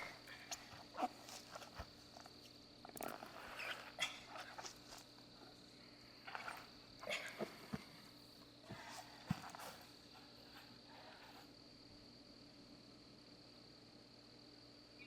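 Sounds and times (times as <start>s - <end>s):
faint rustles and soft knocks: 0.0s - 11.6s.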